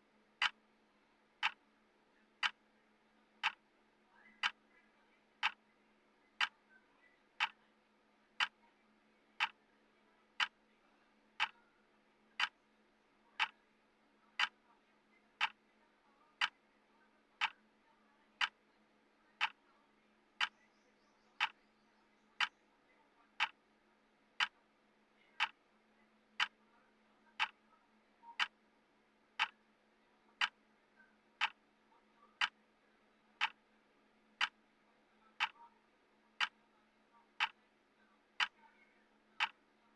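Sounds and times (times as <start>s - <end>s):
clock ticking: 1.4s - 1.6s, 2.4s - 2.6s, 3.4s - 3.6s, 5.4s - 5.6s, 14.4s - 14.6s, 19.4s - 19.6s, 27.4s - 27.6s, 28.4s - 28.6s, 29.4s - 29.6s, 30.4s - 30.6s, 31.4s - 31.6s, 33.4s - 33.6s, 34.4s - 34.6s, 39.4s - 39.6s.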